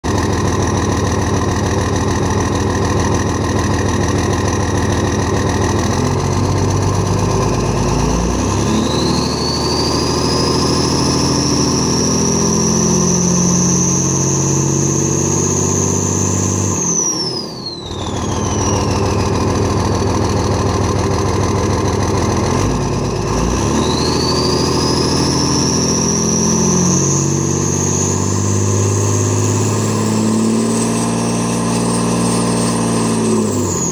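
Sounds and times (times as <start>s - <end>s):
diesel engine revving: 0.0s - 33.9s
high turbo whistle: 8.0s - 19.8s, 23.7s - 33.9s.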